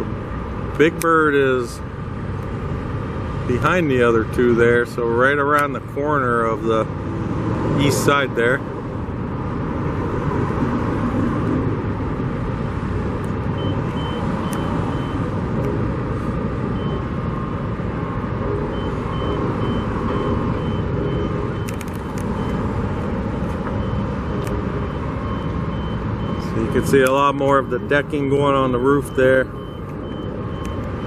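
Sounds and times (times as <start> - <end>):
road traffic rumble: 0.0 - 31.0
reversing alarm beeping: 13.6 - 15.3, 16.8 - 17.2, 18.7 - 22.8, 23.6 - 31.0.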